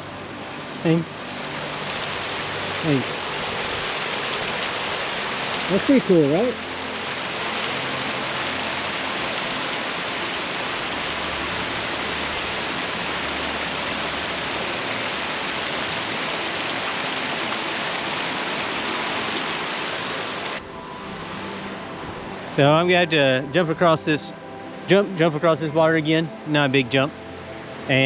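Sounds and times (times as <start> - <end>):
water rushing over dam outflow: 0.0 - 21.8.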